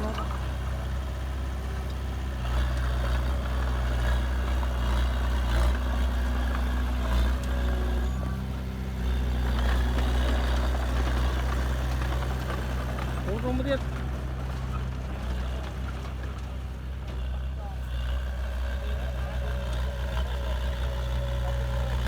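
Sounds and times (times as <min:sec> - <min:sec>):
heavy diesel engine droning: 0:00.0 - 0:22.0.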